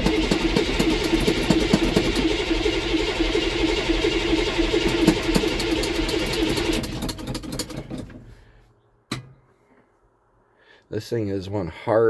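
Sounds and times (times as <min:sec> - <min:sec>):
starter cranking diesel engine: 0:00.0 - 0:08.3.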